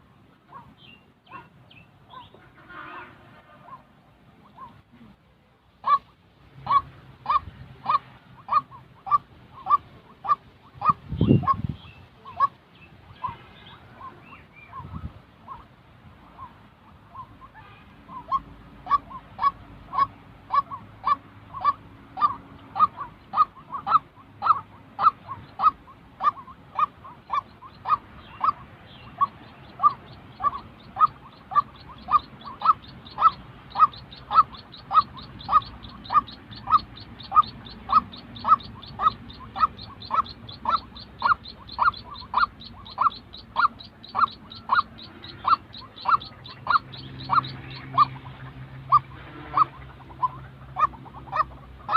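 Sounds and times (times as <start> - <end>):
bird calling sharp notes: 16.3 - 51.9.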